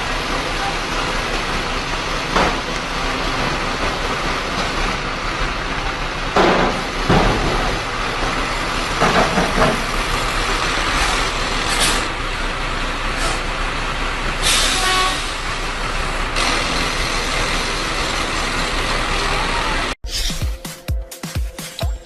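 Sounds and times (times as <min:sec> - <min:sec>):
dump truck engine running: 0:00.0 - 0:20.0
air brake hissing: 0:11.6 - 0:12.1, 0:13.2 - 0:13.5, 0:14.4 - 0:15.5.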